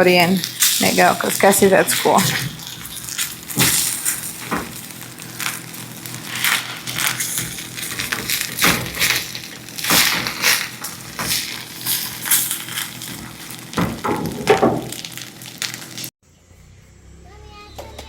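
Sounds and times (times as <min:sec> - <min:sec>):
spatula scraping a frying pan: 0:05.4 - 0:13.5.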